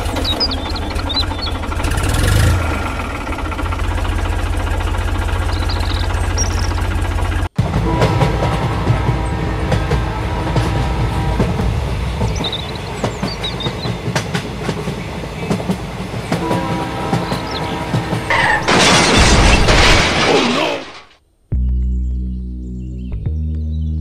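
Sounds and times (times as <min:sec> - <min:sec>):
toy train rumbling on track: 0:00.0 - 0:19.5
toy train crash: 0:18.3 - 0:21.2.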